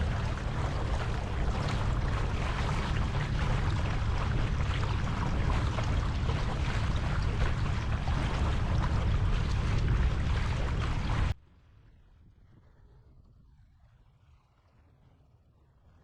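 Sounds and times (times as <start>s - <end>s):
water lapping against kayak: 0.0s - 11.4s
wind buffeting microphone: 0.0s - 11.4s.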